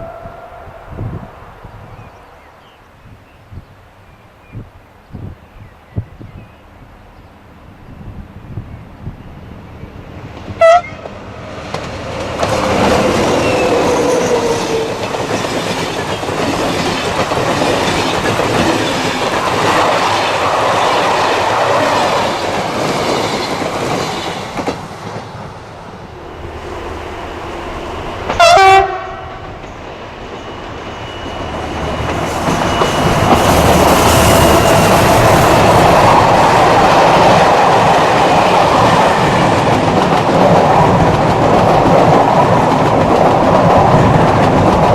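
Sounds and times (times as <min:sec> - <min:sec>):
train horn blast: 0:10.6 - 0:11.1, 0:28.3 - 0:29.5.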